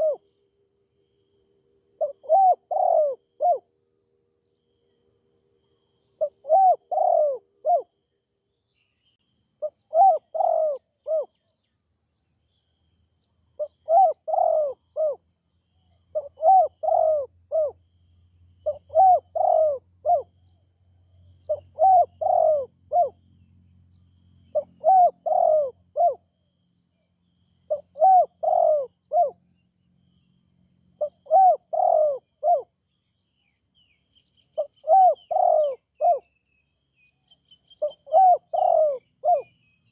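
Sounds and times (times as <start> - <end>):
dove cooing: 0.0 - 0.2, 2.0 - 3.7, 6.2 - 7.9, 9.6 - 11.4, 13.6 - 15.2, 16.1 - 17.8, 18.6 - 20.4, 21.5 - 23.2, 24.5 - 26.2, 27.7 - 29.4, 31.0 - 32.7, 34.6 - 36.3, 37.8 - 39.6.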